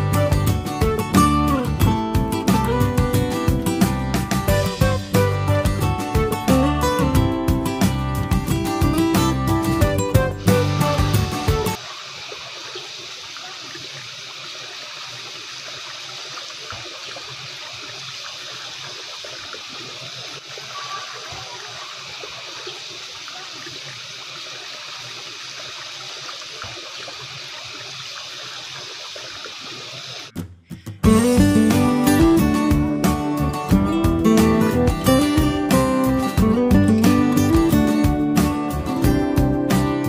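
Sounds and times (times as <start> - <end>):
acoustic guitar music: 0.0 - 11.8, 30.4 - 40.0
running water: 8.4 - 30.4.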